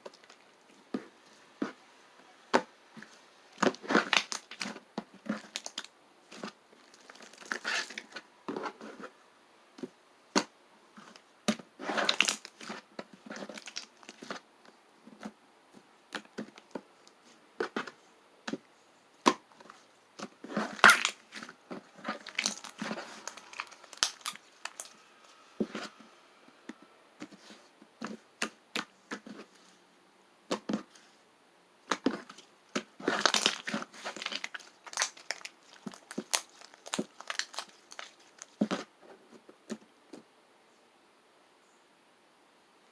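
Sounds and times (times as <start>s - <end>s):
crinkling and crackling handling: 2.5s - 9.2s, 9.8s - 26.1s, 31.8s - 40.3s.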